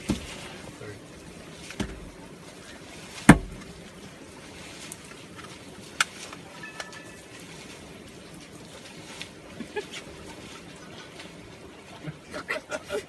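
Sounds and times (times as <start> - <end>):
loud thump: 3.3 - 3.6.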